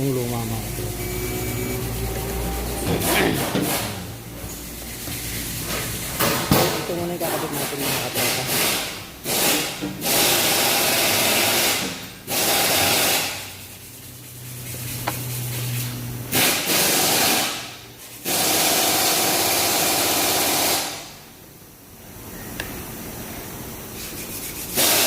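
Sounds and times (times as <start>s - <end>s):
loud bursts of hissing: 7.6s - 14.0s, 16.3s - 21.3s, 23.8s - 25.0s.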